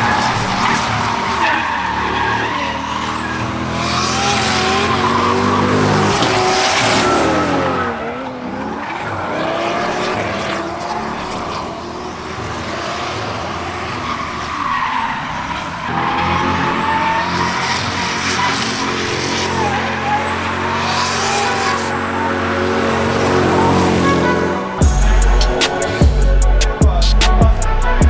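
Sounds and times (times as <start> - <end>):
tyres squealing: 0.0 - 11.4
car engine revving: 0.0 - 28.0.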